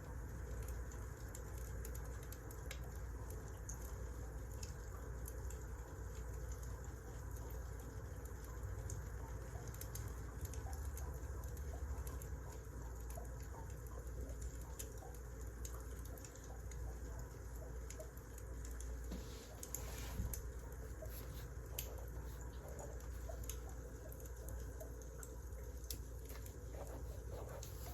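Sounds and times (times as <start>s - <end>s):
wood fire crackling: 0.2s - 27.9s.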